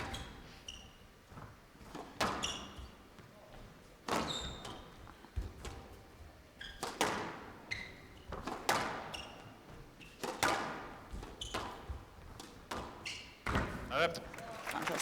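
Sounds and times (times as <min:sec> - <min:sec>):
shoes squeaking on court floor: 0:00.0 - 0:14.3
squash ball hits echoing: 0:06.8 - 0:07.5, 0:08.3 - 0:09.1, 0:10.2 - 0:13.9.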